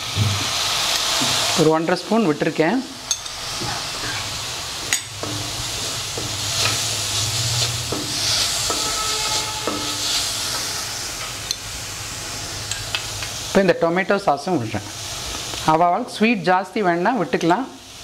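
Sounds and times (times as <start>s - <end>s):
onions sizzling in hot oil: 0.0s - 18.0s
spatula scraping pan: 3.6s - 11.3s.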